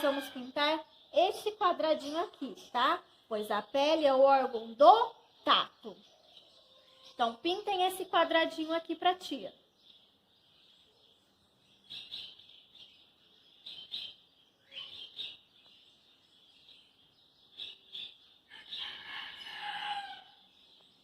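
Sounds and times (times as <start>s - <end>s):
small birds chirping: 0.0s - 21.0s
loud longer bird call: 18.5s - 20.4s.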